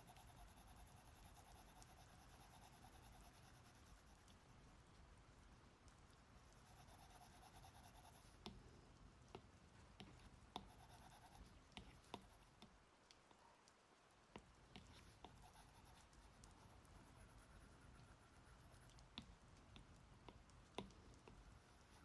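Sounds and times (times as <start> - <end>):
soft hiss: 0.0 - 22.0
stylus tapping on tablet screen: 9.4 - 12.8, 14.4 - 17.2.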